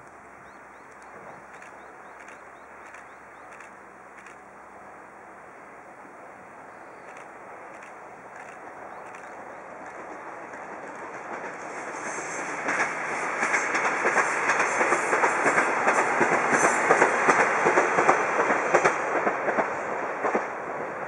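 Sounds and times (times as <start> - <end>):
diesel railcar passing: 0.0 - 21.0
wheels clicking over rail joints: 7.1 - 20.5.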